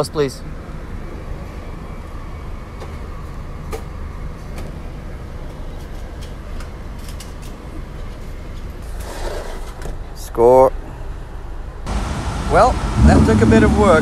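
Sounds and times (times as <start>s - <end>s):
car engine idling: 11.9s - 14.0s.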